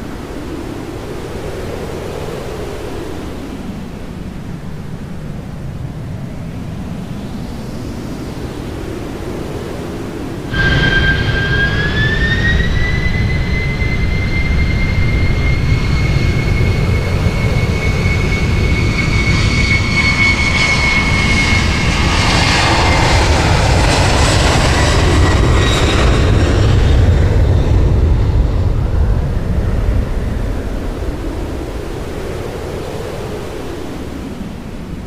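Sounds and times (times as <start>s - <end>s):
jet engines whining and rumbling: 0.0s - 35.0s.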